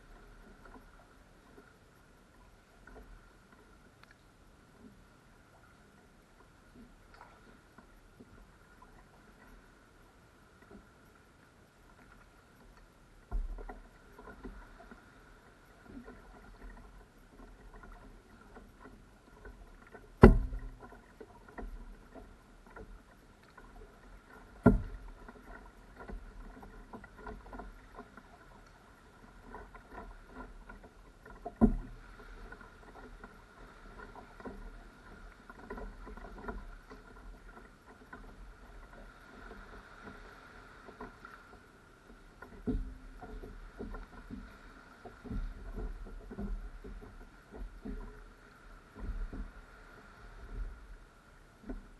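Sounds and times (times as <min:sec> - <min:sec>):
paddle splashing water: 0:00.0 - 0:51.9
sharp knocks: 0:20.2 - 0:20.7.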